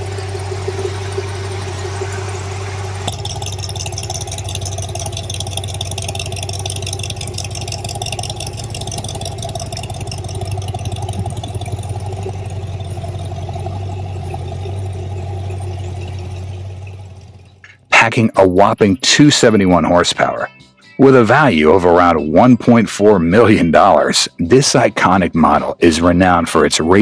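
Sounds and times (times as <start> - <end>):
car engine idling: 0.0 - 18.8.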